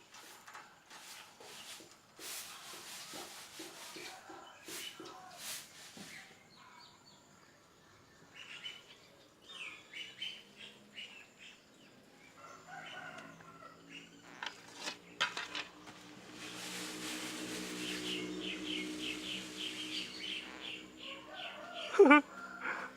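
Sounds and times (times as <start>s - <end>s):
small bird chirping: 17.8s - 22.0s.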